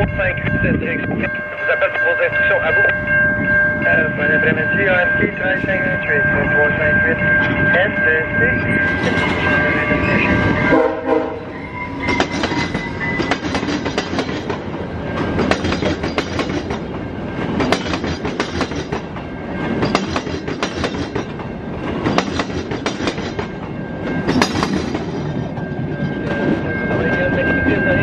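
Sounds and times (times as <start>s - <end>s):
train rumble: 0.0s - 28.0s
train wheels clattering: 8.8s - 28.0s.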